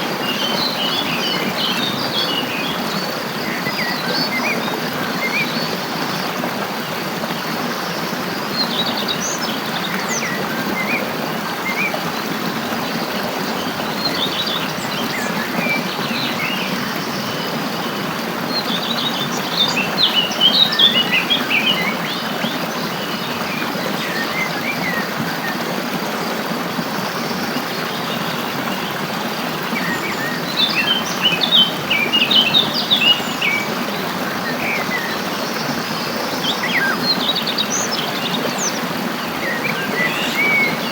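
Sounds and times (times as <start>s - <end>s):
songbirds chirping: 0.1s - 40.9s.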